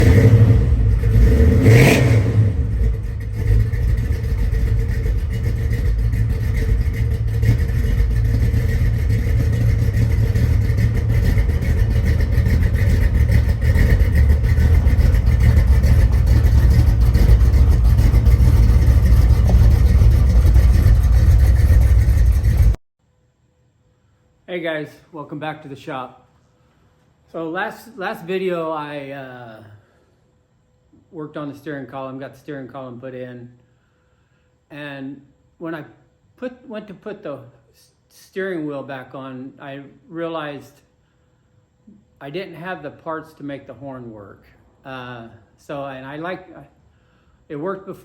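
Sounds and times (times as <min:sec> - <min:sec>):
vehicle engine rumbling: 0:00.0 - 0:22.8.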